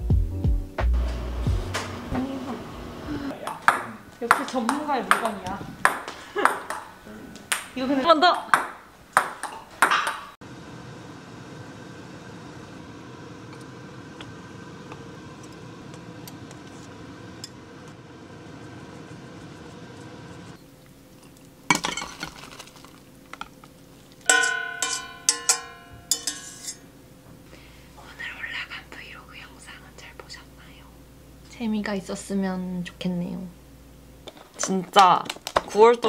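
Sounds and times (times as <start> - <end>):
water boiling in a pot: 10.4 - 24.5
utensils clinking against pot: 24.2 - 26.9.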